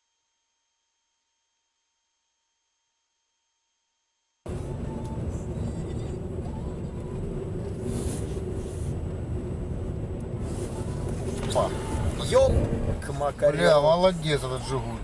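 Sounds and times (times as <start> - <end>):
car engine and road noise: 4.5 - 15.0.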